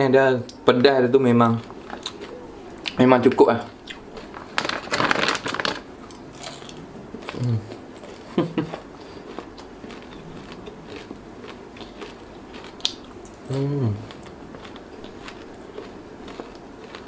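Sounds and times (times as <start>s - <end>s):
crisps crunching and chewing: 1.5s - 17.0s
person humming mm: 7.4s - 7.7s, 13.4s - 14.1s.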